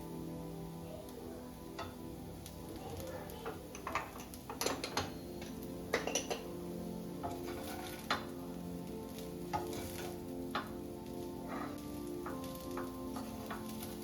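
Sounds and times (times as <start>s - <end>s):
utensils clinking against cookware: 3.0s - 6.6s, 7.2s - 8.4s, 9.4s - 14.0s.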